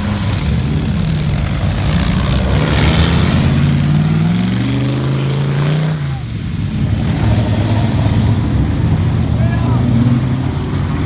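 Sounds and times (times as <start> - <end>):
car engine running loud: 0.0 - 11.0.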